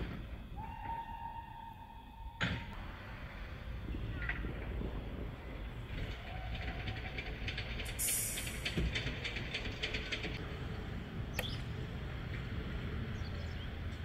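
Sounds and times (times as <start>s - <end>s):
train equipment humming: 0.0s - 14.0s
quick ticks and clicks: 6.0s - 10.4s
air hiss: 8.0s - 8.8s.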